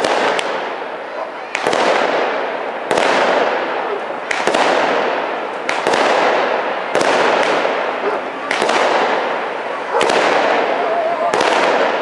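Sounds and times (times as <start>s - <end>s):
firecrackers banging: 0.0s - 12.0s.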